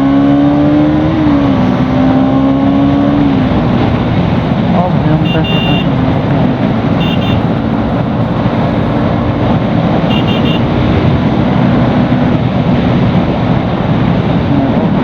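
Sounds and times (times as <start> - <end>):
wind and road noise: 0.0 - 15.0
motorcycle engine running: 3.8 - 12.0
short high beeps: 5.2 - 5.9, 7.0 - 7.5, 10.1 - 10.6.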